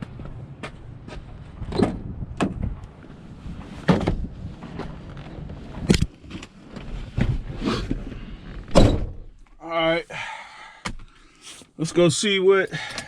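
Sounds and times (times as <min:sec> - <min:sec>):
steady low rumble: 0:00.0 - 0:06.2
knocks and clunks: 0:03.8 - 0:04.9.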